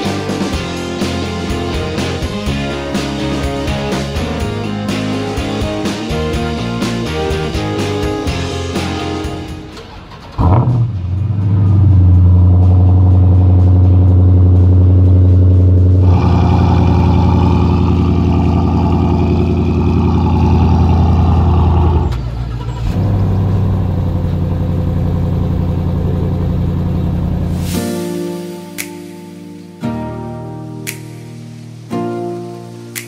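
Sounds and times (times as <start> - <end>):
car engine starting: 0.0 - 28.4
car engine idling: 6.2 - 27.7.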